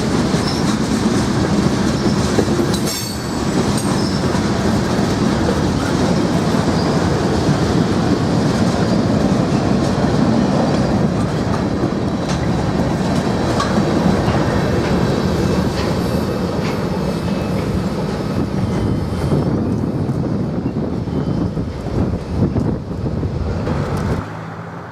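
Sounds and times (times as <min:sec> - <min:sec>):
freight train cars rumbling: 0:00.0 - 0:24.9.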